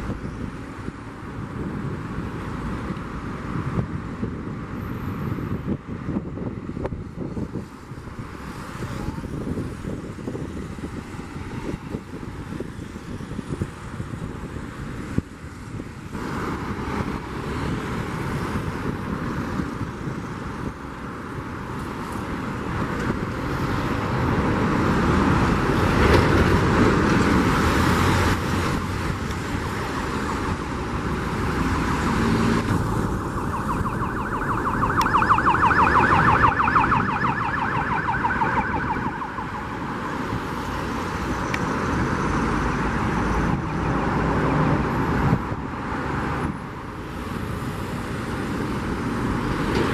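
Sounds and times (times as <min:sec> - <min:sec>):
whining pulsing tone: 0:33.0 - 0:40.1.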